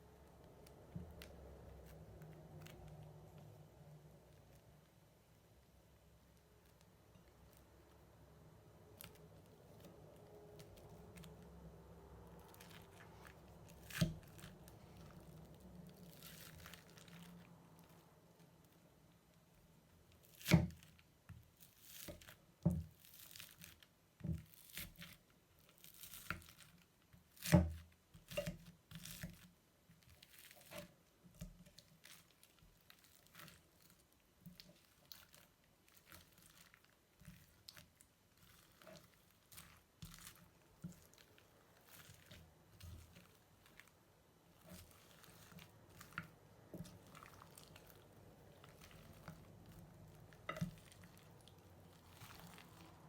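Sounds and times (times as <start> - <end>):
slime crackling and popping: 8.9 - 18.8, 20.1 - 29.4, 31.7 - 53.0.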